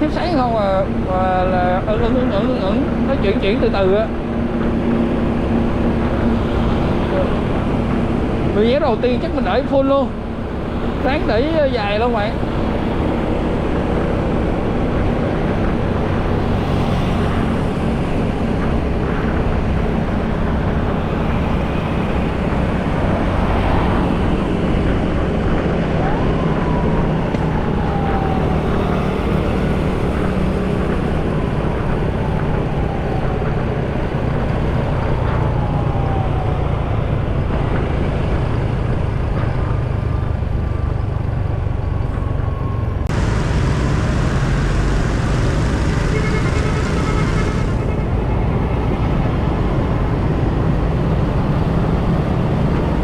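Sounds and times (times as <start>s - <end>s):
traffic noise: 0.0s - 53.0s
falling whines: 42.6s - 48.2s
motorcycle engine: 43.1s - 48.5s.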